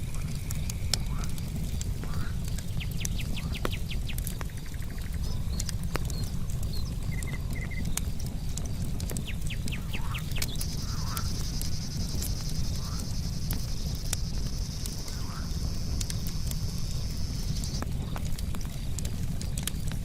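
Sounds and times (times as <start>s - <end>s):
campfire crackling and popping: 0.0s - 20.0s
insects chirping: 0.0s - 20.0s
high-pitched insect trill: 10.6s - 17.8s.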